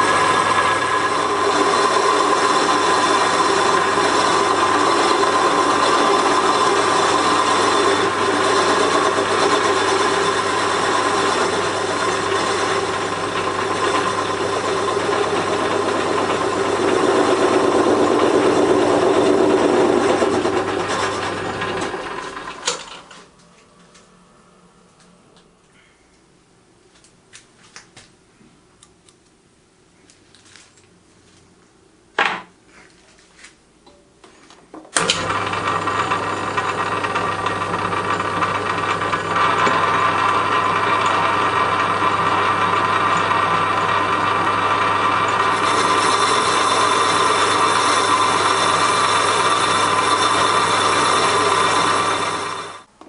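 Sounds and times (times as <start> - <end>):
machine tool humming: 0.0 - 22.9, 35.0 - 52.9.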